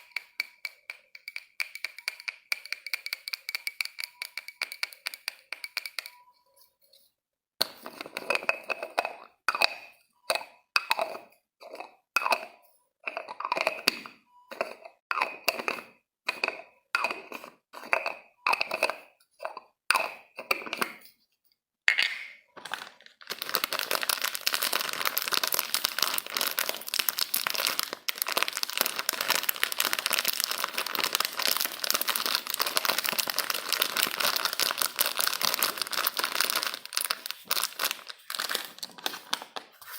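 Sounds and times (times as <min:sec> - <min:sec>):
dense crinkling and crackling: 0:22.6 - 0:39.9.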